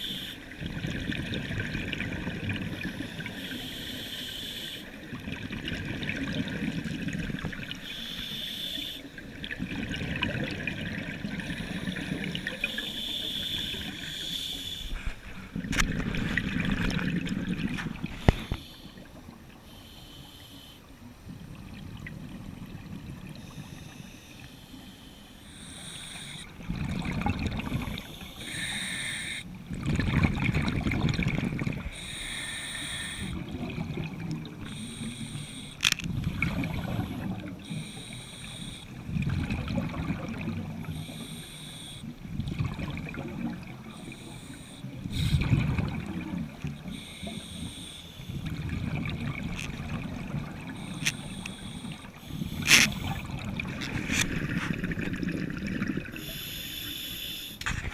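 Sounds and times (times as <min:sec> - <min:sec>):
regulator inhale hiss: 0:00.0 - 0:00.5, 0:02.7 - 0:05.0, 0:07.8 - 0:09.1, 0:11.4 - 0:15.4, 0:18.1 - 0:20.9, 0:23.4 - 0:26.5, 0:27.7 - 0:29.5, 0:31.9 - 0:33.4, 0:34.6 - 0:38.9, 0:40.9 - 0:42.1, 0:43.8 - 0:45.5, 0:46.8 - 0:48.6, 0:50.8 - 0:53.4, 0:56.2 - 0:57.6
exhaled bubbles rushing: 0:00.5 - 0:03.3, 0:05.1 - 0:07.8, 0:09.2 - 0:12.7, 0:14.9 - 0:19.4, 0:26.3 - 0:28.2, 0:29.6 - 0:32.1, 0:33.2 - 0:34.8, 0:36.1 - 0:37.6, 0:39.0 - 0:41.0, 0:42.2 - 0:44.2, 0:45.0 - 0:47.4, 0:48.3 - 0:56.2.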